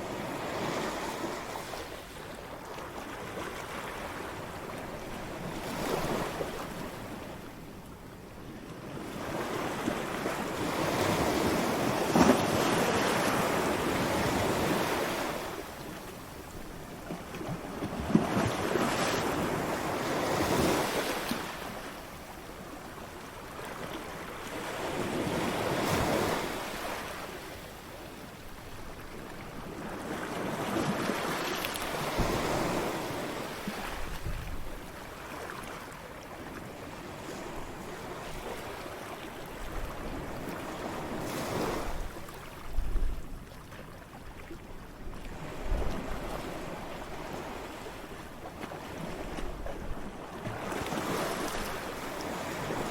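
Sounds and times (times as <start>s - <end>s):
ocean waves breaking: 45.3s - 52.9s.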